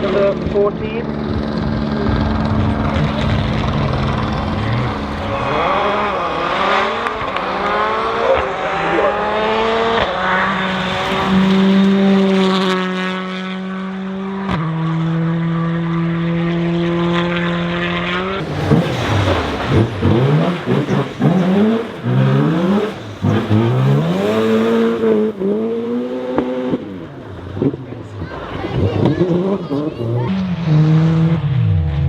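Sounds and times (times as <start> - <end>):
rally car engine revving: 0.0 - 32.0
exhaust pops and bangs: 1.2 - 8.6.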